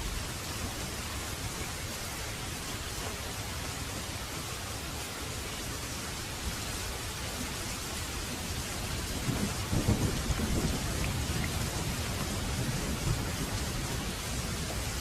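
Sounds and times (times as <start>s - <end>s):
heavy rain falling: 0.0s - 15.0s
thunder rumbling: 8.8s - 15.0s.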